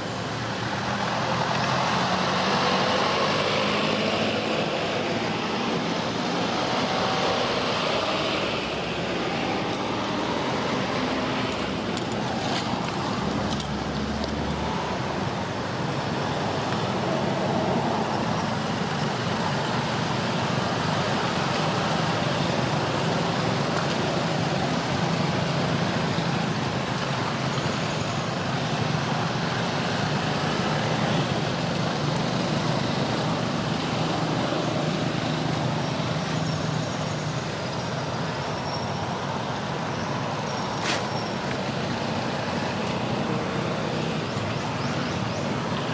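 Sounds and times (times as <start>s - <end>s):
vehicles passing: 0.0s - 45.9s.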